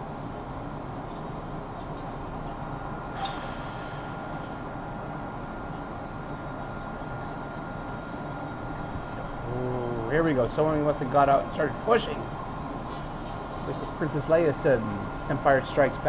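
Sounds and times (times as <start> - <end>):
faint constant whine: 0.0 - 16.0
subway car rumble: 0.0 - 16.0
hiss of air: 3.1 - 4.6.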